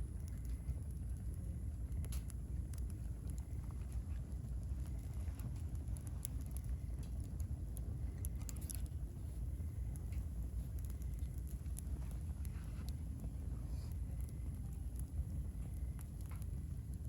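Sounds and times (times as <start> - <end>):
firewood crackling and popping: 0.0 - 17.0
low fire rumble: 0.0 - 17.0.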